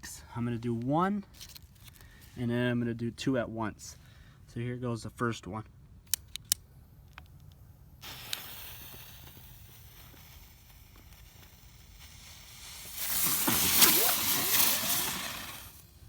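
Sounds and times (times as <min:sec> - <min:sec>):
fuse hissing: 0:07.8 - 0:16.0
spinning firework rushing hiss: 0:07.8 - 0:16.0.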